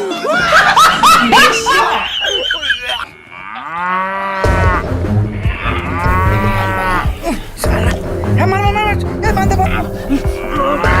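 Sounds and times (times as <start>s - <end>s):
cow mooing: 3.1s - 7.2s.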